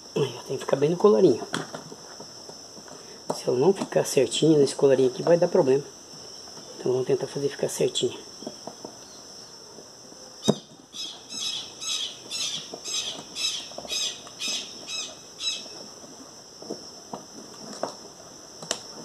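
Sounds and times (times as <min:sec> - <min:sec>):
insect trill: 0:00.0 - 0:19.0
bird squawking: 0:10.5 - 0:15.7.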